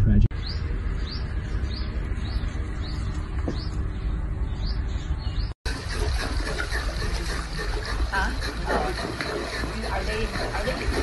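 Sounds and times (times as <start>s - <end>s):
pool water hissing: 5.7s - 11.0s.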